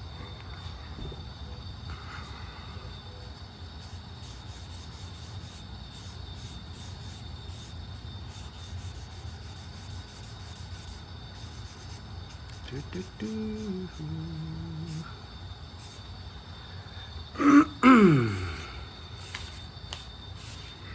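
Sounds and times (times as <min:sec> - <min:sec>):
steady low hum: 0:00.0 - 0:20.9
drawing tool scratching on paper: 0:02.6 - 0:15.0, 0:19.0 - 0:20.8.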